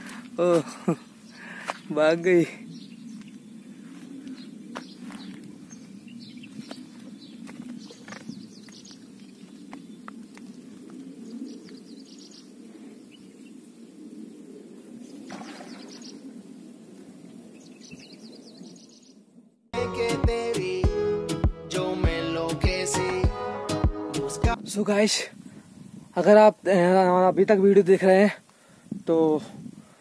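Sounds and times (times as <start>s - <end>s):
birds chirping: 0.0s - 19.5s.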